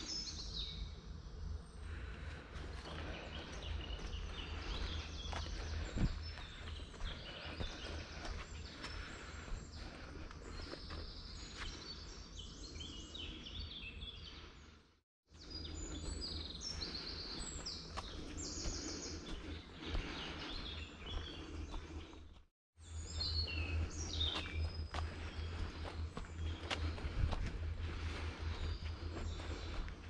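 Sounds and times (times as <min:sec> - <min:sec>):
songbirds singing trills: 0:00.0 - 0:30.0
footsteps: 0:02.0 - 0:11.8, 0:16.8 - 0:22.5, 0:23.7 - 0:30.0.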